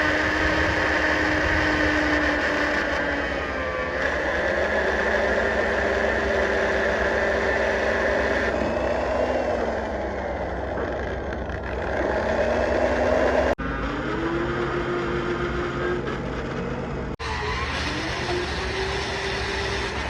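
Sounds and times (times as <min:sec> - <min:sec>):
engine idling: 0:04.0 - 0:17.2.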